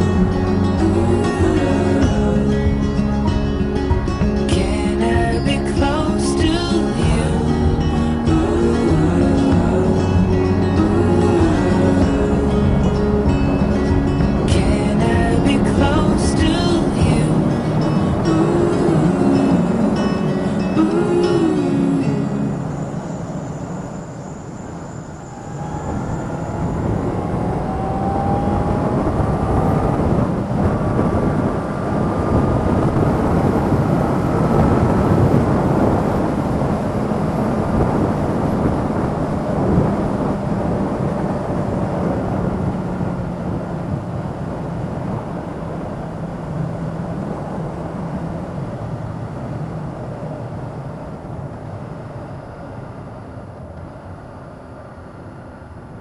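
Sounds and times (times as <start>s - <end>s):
wind rush: 0.0s - 56.0s
motorcycle engine accelerating: 25.2s - 46.4s.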